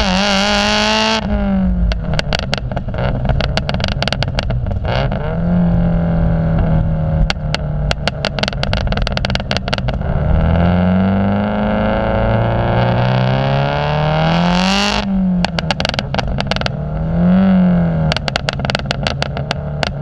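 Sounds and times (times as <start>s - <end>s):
car engine and exhaust: 0.0s - 20.0s
exhaust crackles: 0.0s - 20.0s.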